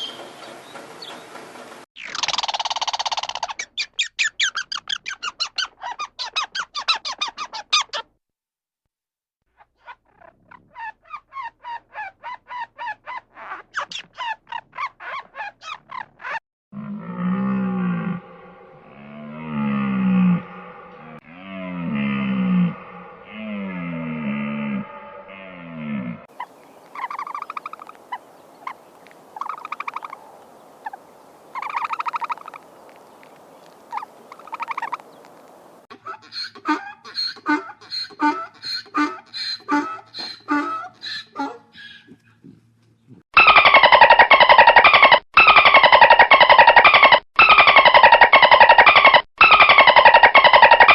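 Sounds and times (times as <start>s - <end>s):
animal rattling calls: 2.0s - 8.0s, 26.4s - 28.8s, 29.4s - 30.2s, 31.6s - 35.1s, 43.4s - 50.9s
animal making short pitched calls: 36.0s - 43.5s.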